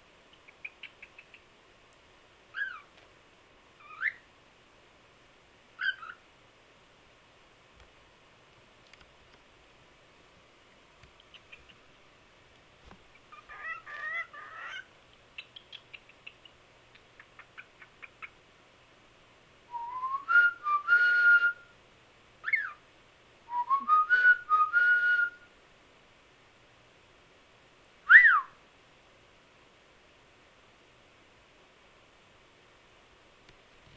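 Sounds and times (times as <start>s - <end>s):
bird chatter and clicks: 0.4s - 2.0s, 11.0s - 11.8s, 15.1s - 18.4s
cockatiel whistling: 2.5s - 2.9s, 3.8s - 4.2s, 5.8s - 6.2s, 19.7s - 21.7s, 22.4s - 22.8s, 23.5s - 25.4s, 28.1s - 28.5s
wolf whistle: 19.7s - 21.7s, 23.5s - 25.4s, 28.1s - 28.6s.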